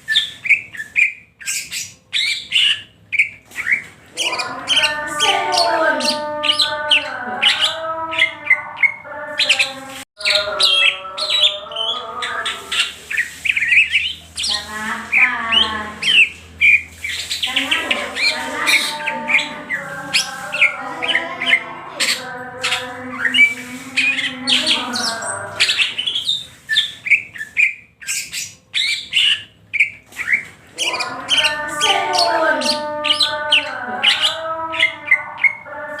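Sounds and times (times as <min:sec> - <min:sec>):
bird singing chirps and whistles: 0:15.5 - 0:35.6.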